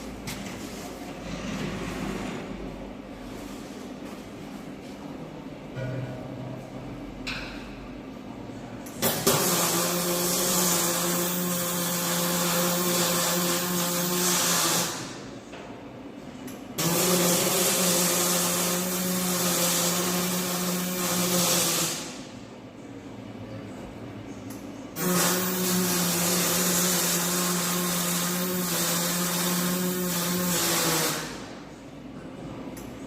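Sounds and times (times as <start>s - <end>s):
welding hiss: 9.0s - 15.2s, 16.8s - 22.2s, 25.0s - 31.5s
welder hum: 9.0s - 15.3s, 16.8s - 22.3s, 25.0s - 31.6s.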